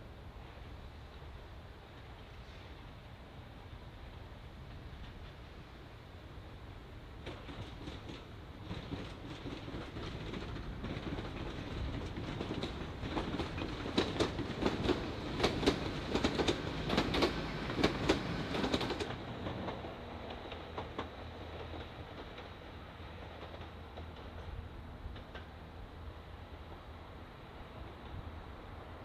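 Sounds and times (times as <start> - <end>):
train rumble: 0.0 - 29.0
train wheels clattering: 7.2 - 25.8.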